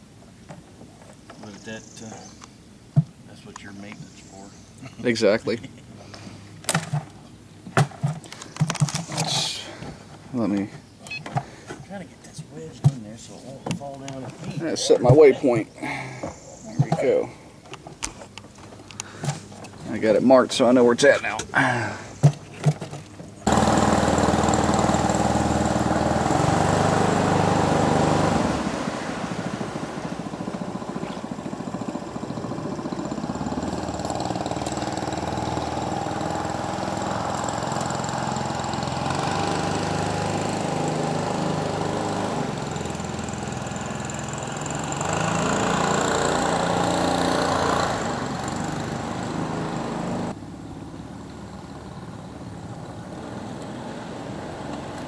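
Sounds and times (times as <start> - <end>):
small gas engine running: 23.4 - 55.0.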